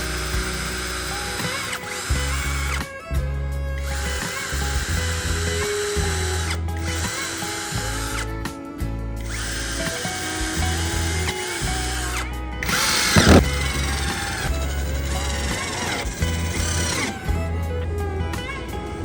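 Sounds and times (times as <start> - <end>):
power tool motor running: 0.0 - 3.0, 3.8 - 8.3, 9.2 - 17.7
background music: 0.0 - 19.0
loud burst of noise: 9.2 - 17.4.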